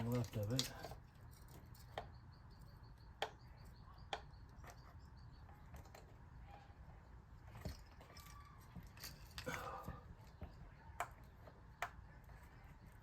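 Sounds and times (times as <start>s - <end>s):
tools and parts clicking: 0.0s - 2.2s
low steady background: 0.0s - 13.0s.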